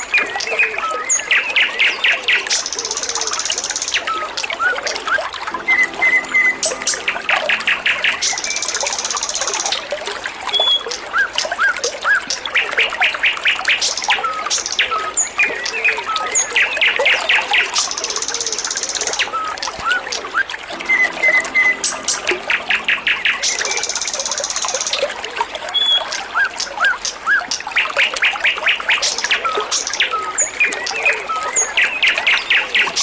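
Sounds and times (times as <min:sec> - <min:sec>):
trickle of running water: 0:00.0 - 0:33.0
songbird chirping and trilling: 0:05.6 - 0:11.0, 0:12.6 - 0:33.0.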